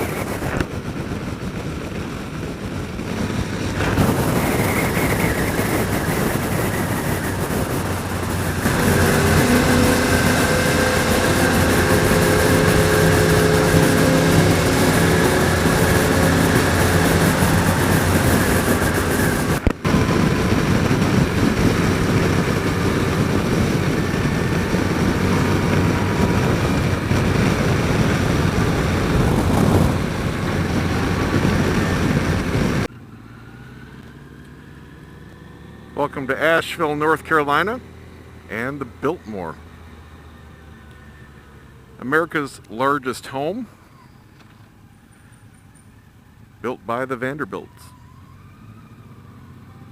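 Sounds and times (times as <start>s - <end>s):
wind noise: 0.0s - 32.9s
motorcycle engine: 0.0s - 43.0s, 47.6s - 49.9s.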